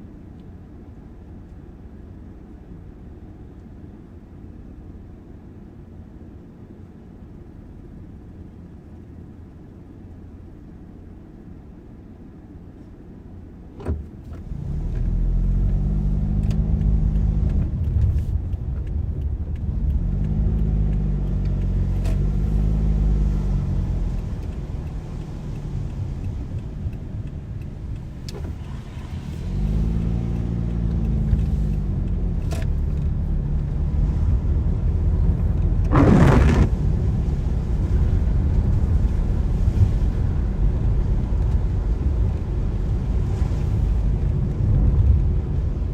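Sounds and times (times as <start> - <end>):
car engine accelerating: 14.2 - 45.9.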